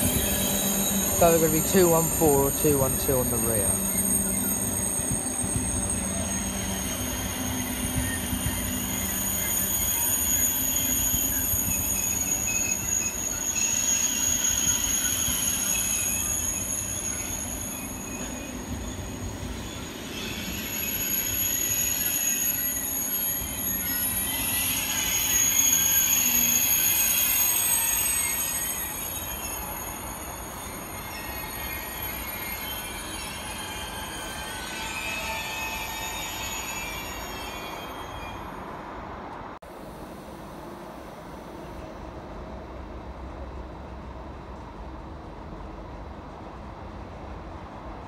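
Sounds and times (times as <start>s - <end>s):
steady high-pitched tones: 0.0s - 19.1s
train running noise: 0.0s - 48.0s.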